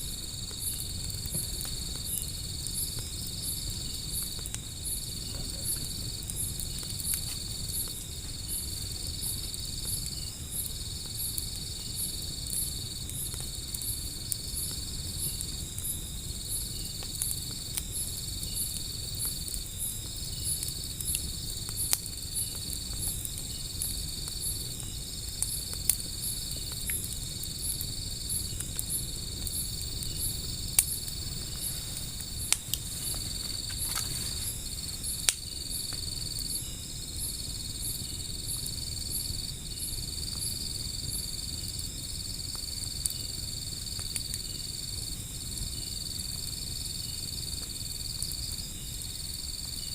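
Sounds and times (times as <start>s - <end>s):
burning wood crackling: 0.0s - 49.9s
insects chirring: 0.0s - 49.9s
wood fire rushing: 0.2s - 11.7s, 18.8s - 38.8s.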